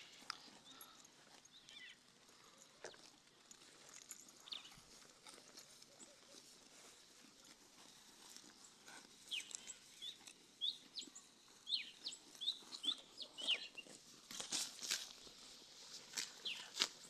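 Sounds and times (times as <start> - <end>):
small birds chirping: 0.0 - 2.6, 4.0 - 5.0, 8.4 - 14.0, 16.4 - 16.9.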